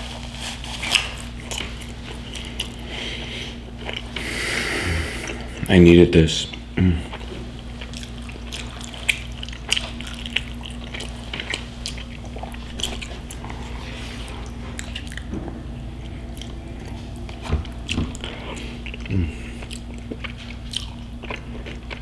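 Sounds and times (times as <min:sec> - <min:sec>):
steady low hum: 0:00.0 - 0:22.0
man chewing and swallowing: 0:00.5 - 0:05.7, 0:06.5 - 0:22.0.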